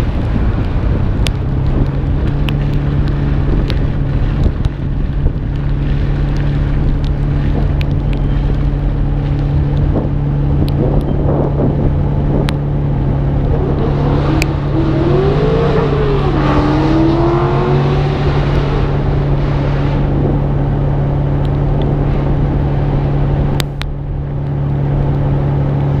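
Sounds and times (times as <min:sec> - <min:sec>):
car engine droning: 0:00.0 - 0:26.0
wind and road noise: 0:00.0 - 0:26.0
rising and falling tone: 0:12.6 - 0:21.2.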